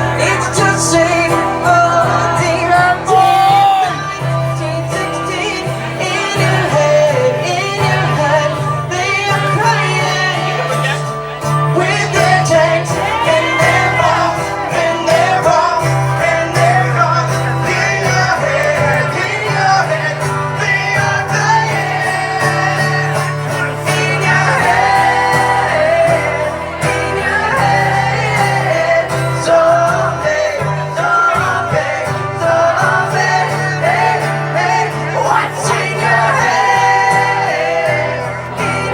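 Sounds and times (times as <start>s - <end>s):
guitar accompaniment: 0.0s - 38.9s
person singing: 0.0s - 38.9s.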